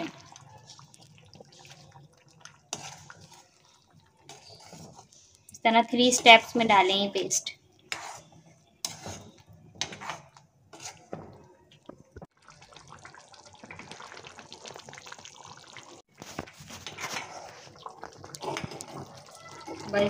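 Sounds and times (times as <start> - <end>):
thick sauce bubbling and sizzling: 0.0 - 20.0
metal spoon scraping a pan: 2.7 - 5.3, 7.4 - 11.2, 16.3 - 20.0.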